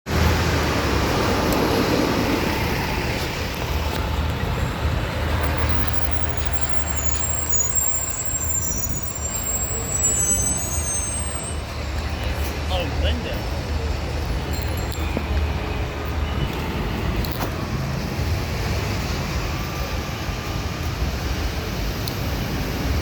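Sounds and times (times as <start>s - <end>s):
street traffic: 0.0s - 23.0s
truck engine rumbling: 0.1s - 23.0s
high-pitched squeal: 5.2s - 12.2s.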